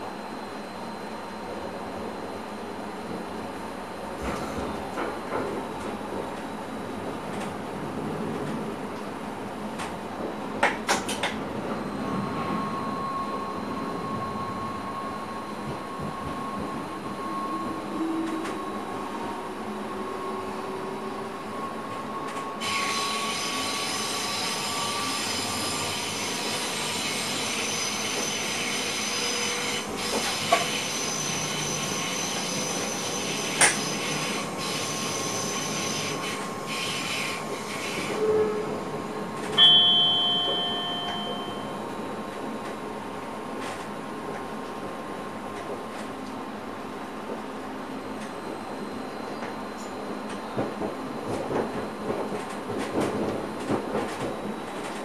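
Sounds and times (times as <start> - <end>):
train running: 0.1 - 55.0
loud short beep: 39.6 - 41.8.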